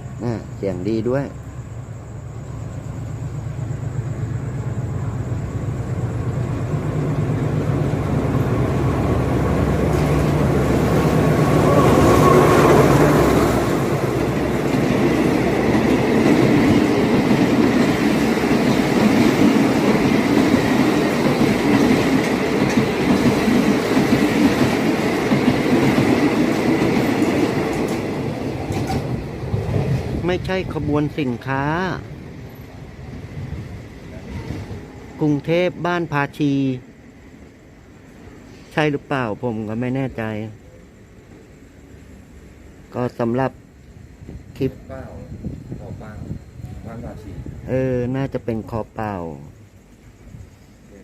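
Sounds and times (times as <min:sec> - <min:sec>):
diesel locomotive engine drone: 0:00.0 - 0:51.0
train wheels clattering: 0:05.9 - 0:30.3.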